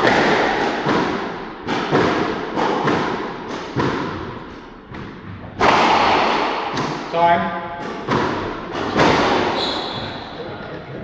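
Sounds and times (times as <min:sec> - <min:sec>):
ball smacking court walls: 0:00.0 - 0:07.1, 0:07.8 - 0:10.6
racket hitting squash ball: 0:00.0 - 0:11.0.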